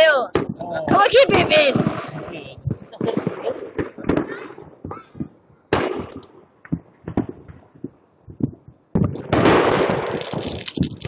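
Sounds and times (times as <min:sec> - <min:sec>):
fireworks bangs and pops: 0:00.0 - 0:11.0
fireworks crackle with hiss: 0:00.3 - 0:04.9, 0:05.8 - 0:06.3, 0:08.9 - 0:11.0.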